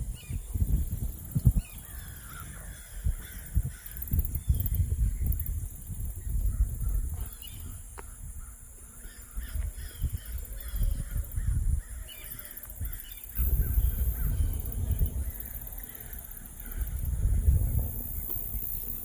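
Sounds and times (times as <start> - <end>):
birds calling and cawing: 1.2 - 5.4, 6.2 - 19.0
low rumble: 13.4 - 18.5.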